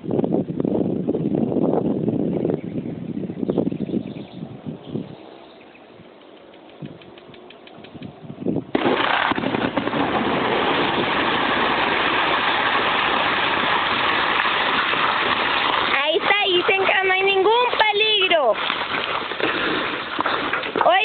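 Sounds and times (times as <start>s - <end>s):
dynamite blast: 8.7s - 16.0s
rock and debris falling: 8.7s - 21.0s.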